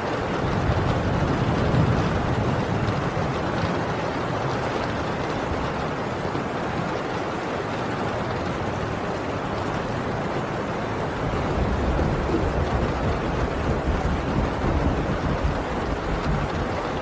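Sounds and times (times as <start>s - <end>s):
heavy rain on a tin roof: 0.0s - 17.0s
distant thunder rumble: 0.3s - 5.8s, 11.0s - 17.0s.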